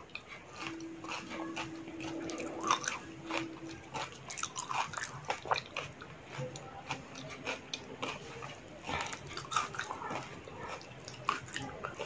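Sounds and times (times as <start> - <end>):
crisp shells crunching and chewing: 0.0 - 12.0.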